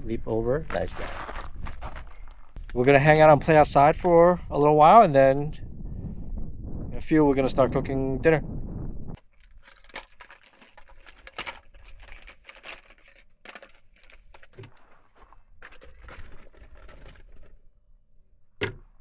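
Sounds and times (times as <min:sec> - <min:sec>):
crunches and rustles: 0:00.7 - 0:02.8, 0:09.2 - 0:17.6.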